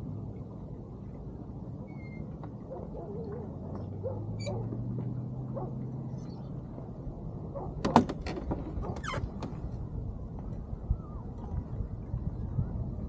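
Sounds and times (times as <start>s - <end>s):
sailboat deck gear clicks: 7.8s - 9.8s.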